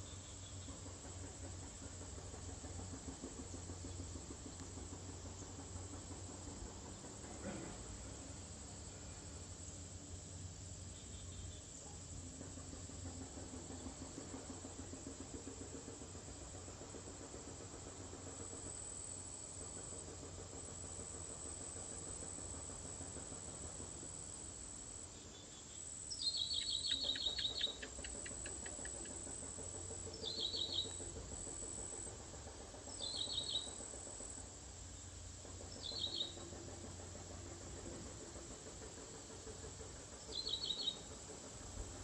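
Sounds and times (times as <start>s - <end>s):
high insect drone: 0.0s - 42.0s
bird chattering calls: 26.1s - 31.4s, 32.9s - 33.9s, 35.7s - 36.5s, 39.1s - 41.2s.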